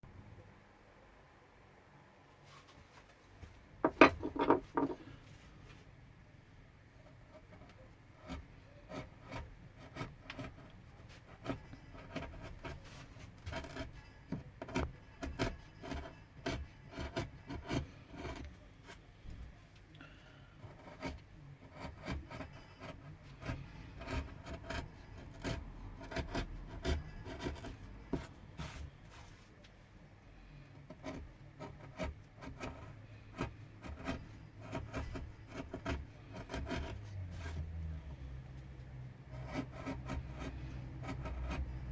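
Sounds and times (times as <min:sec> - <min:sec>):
carving tool scraping wood: 0:07.0 - 0:19.0, 0:20.5 - 0:29.4, 0:30.8 - 0:38.3, 0:39.2 - 0:41.9.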